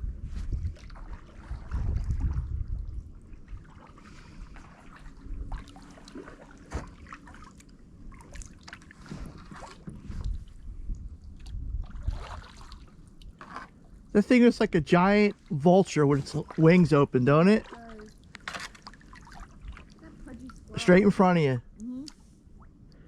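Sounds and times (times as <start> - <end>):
wind rumble on microphone: 0.0 - 7.2, 7.9 - 13.4
paddle blades dipping in water: 0.5 - 21.1.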